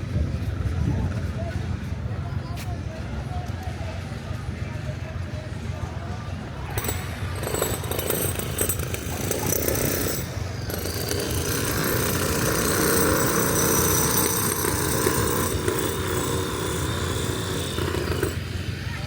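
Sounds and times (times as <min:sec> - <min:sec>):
machinery rattling: 0:06.8 - 0:18.7.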